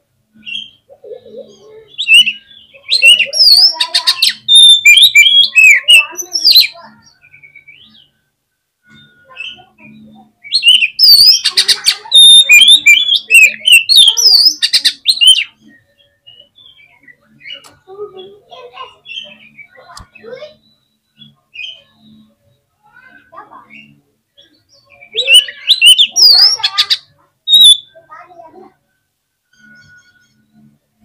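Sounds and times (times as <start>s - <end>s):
magpie-robin singing: 0.3s - 8.2s, 8.9s - 28.7s
bird harsh rattling chatter: 10.6s - 15.4s, 25.2s - 28.3s.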